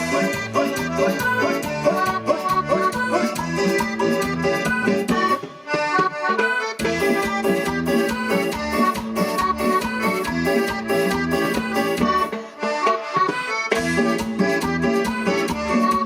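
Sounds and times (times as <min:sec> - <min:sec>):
steady bass beat: 0:00.0 - 0:05.4
accordion-voiced keyboard melody: 0:00.0 - 0:16.0
latin dance band: 0:00.0 - 0:16.0.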